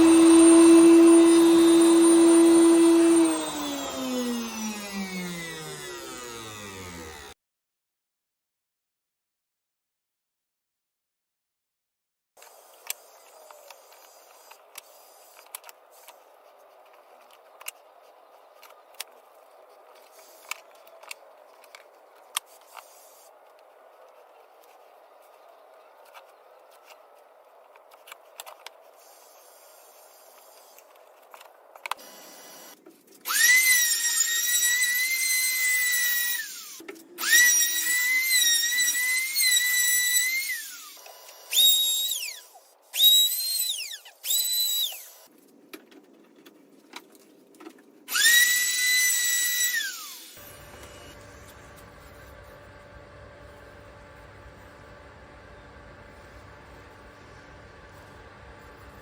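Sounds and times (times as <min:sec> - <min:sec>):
electric router motor whining: 0:00.0 - 0:07.4, 0:31.9 - 0:45.3, 0:48.1 - 0:59.0.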